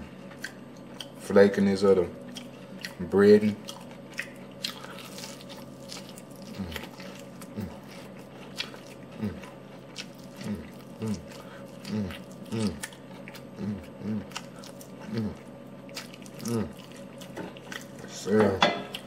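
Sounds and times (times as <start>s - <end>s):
person crunching fried chicken: 3.6s - 18.0s.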